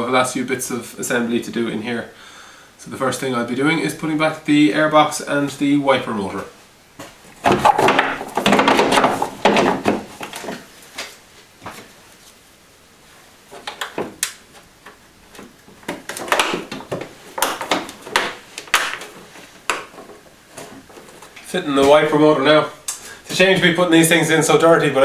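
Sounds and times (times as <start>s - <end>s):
car parts and tools clattering: 7.0s - 11.1s.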